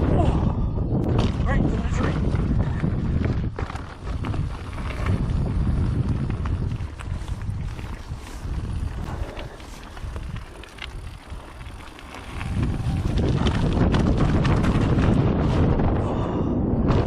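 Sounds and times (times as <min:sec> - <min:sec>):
wind rushing over microphone: 0:00.0 - 0:17.0
bike chain and frame rattling: 0:01.2 - 0:15.6.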